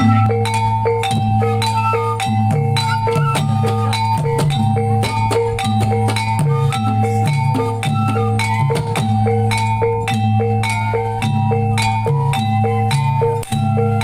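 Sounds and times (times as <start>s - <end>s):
sustained low tone: 0.0s - 0.6s
drum strokes: 0.0s - 14.0s
metal mallet instruments melody: 0.0s - 14.0s.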